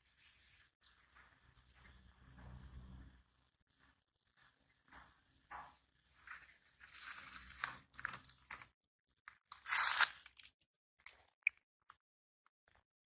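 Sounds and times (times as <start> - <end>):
crunching and crackling: 6.3 - 11.4.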